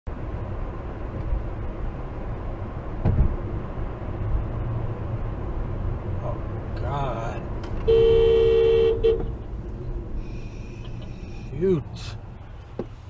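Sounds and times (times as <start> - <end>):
car road and engine rumble: 0.1 - 13.0
short thump: 3.0 - 3.4.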